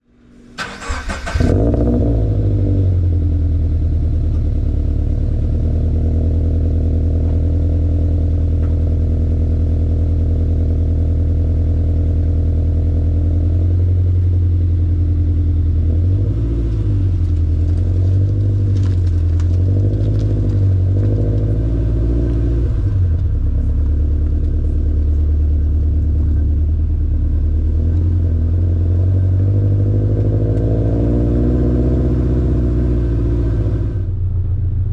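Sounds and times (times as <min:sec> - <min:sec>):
car engine idling: 0:00.1 - 0:29.5, 0:33.2 - 0:34.9
engine throttle blips: 0:00.4 - 0:06.0.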